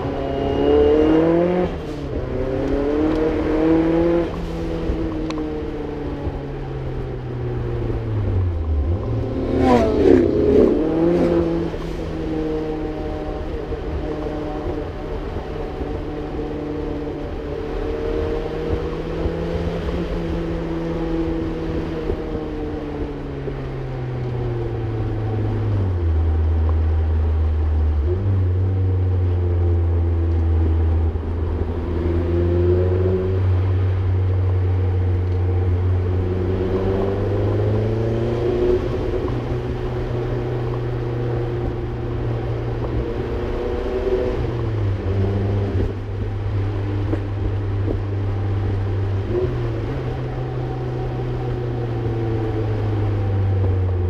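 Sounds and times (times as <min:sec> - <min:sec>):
car engine and exhaust: 0:00.0 - 0:54.0.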